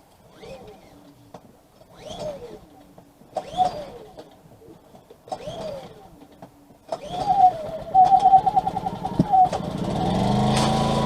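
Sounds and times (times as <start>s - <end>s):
generator pull-start: 6.9s - 11.0s
small petrol engine running: 6.9s - 11.0s.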